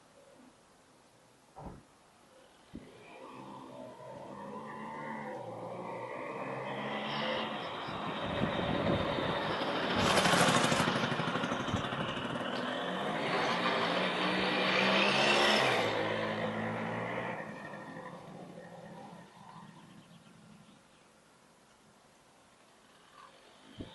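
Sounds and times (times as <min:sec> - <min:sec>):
moped engine revving: 0:02.8 - 0:20.6.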